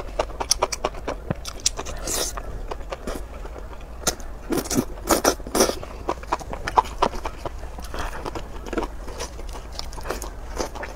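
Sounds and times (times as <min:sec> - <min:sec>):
person chewing wet food: 0:00.0 - 0:10.9
mouth clicks and smacks: 0:00.2 - 0:02.8.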